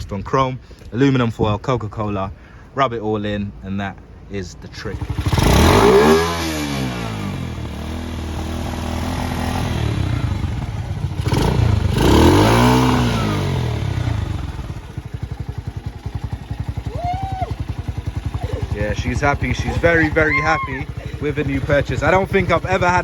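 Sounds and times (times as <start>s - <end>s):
motorcycle engine idling: 4.8s - 23.0s
motorcycle engine revving: 4.9s - 23.0s.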